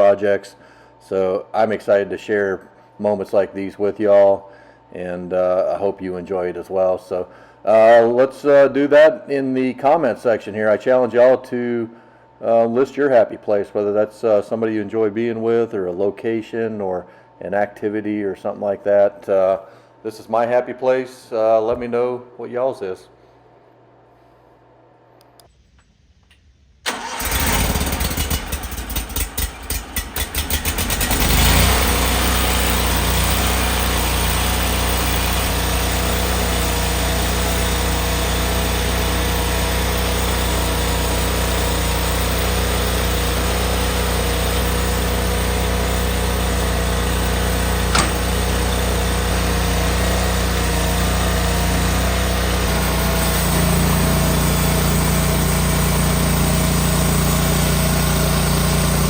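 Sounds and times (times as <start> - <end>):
sawmill engine running: 26.9 - 59.0.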